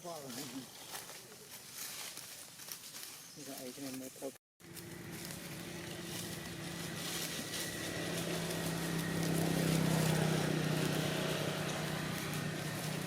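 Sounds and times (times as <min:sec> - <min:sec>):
vehicle engine humming: 0:04.6 - 0:13.0.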